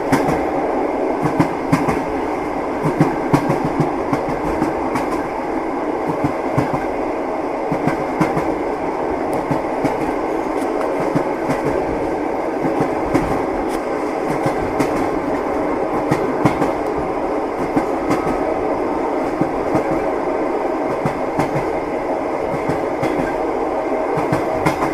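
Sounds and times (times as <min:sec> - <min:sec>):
train wheels clicking over rail joints: 0:00.0 - 0:00.5, 0:01.2 - 0:02.2, 0:02.8 - 0:05.3, 0:09.3 - 0:17.0, 0:20.9 - 0:21.8, 0:22.5 - 0:23.4, 0:24.1 - 0:24.9
moving train running noise: 0:00.0 - 0:24.9.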